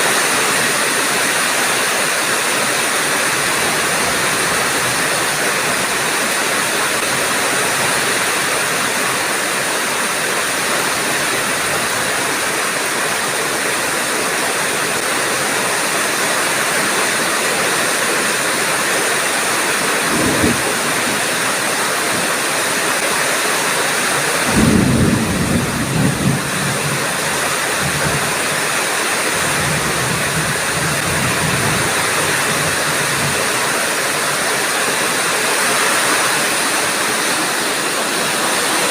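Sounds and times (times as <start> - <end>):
heavy rain pouring: 0.0 - 38.9
thunder rumbling: 20.0 - 21.6, 24.4 - 28.6.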